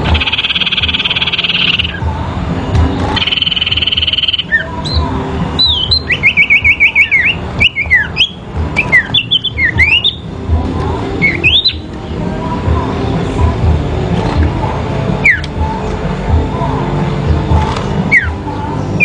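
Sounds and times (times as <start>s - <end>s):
buzzing trill: 0.0s - 10.4s
songbird singing: 0.0s - 16.5s, 17.8s - 19.0s.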